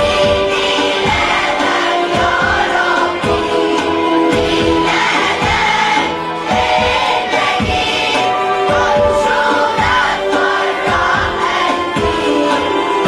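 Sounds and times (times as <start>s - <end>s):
church choir singing a hymn: 0.0s - 13.0s
steady low beat: 0.0s - 13.0s.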